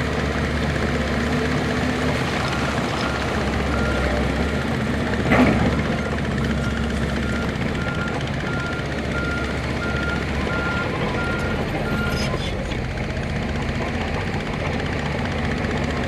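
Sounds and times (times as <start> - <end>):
diesel engine running: 0.0 - 16.0
reversing alarm beeping: 6.0 - 12.2.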